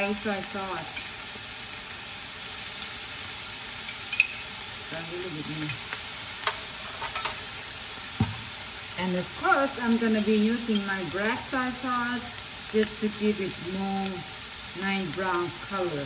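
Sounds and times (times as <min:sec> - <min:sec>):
fried rice sizzling in a frying pan: 0:00.0 - 0:16.0
metal spoon clinking: 0:03.9 - 0:04.4, 0:05.6 - 0:07.4.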